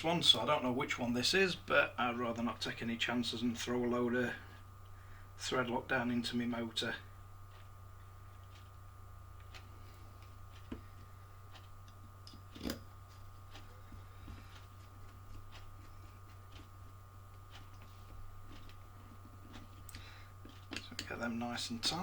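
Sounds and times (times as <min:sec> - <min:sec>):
steady electrical hum: 0:00.0 - 0:22.0.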